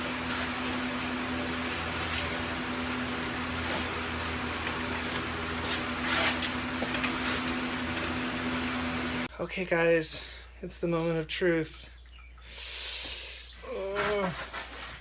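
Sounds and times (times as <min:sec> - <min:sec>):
electrical hum: 0:00.0 - 0:09.4.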